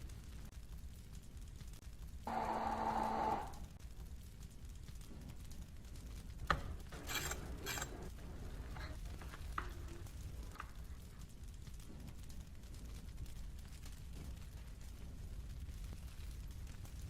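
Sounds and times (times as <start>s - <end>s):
utensil scrapes: 7.0s - 8.1s.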